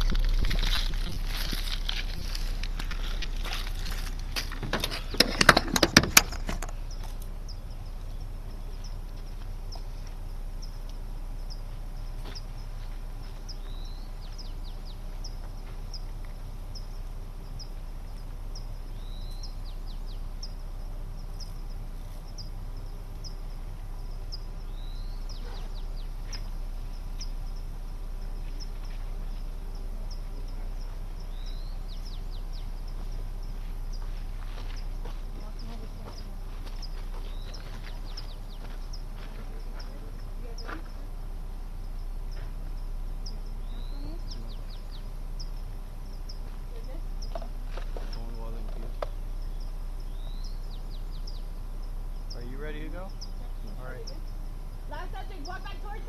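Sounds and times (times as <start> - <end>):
loud crackling rustle: 0.0 - 5.2
bird chirping: 0.0 - 56.0
low steady hum: 0.0 - 56.0.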